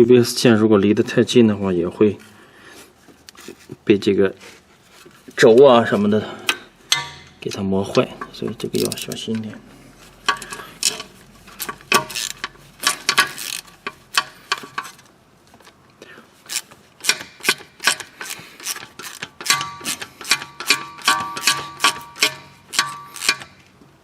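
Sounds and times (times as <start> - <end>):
hand tools and parts clicking: 6.5 - 9.6, 10.2 - 23.9.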